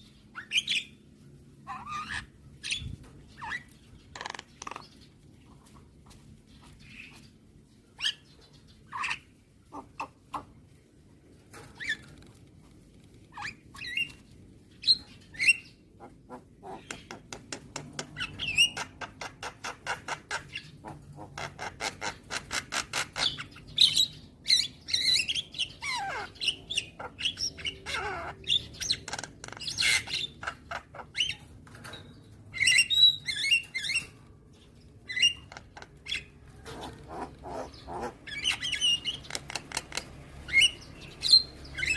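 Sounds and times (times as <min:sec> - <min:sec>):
myna harsh chirps and squawks: 0:35.1 - 0:41.9.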